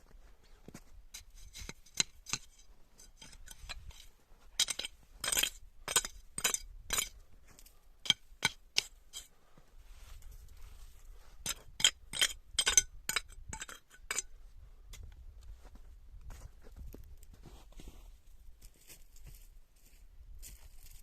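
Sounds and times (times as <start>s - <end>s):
hard objects clinking together: 4.6s - 7.1s.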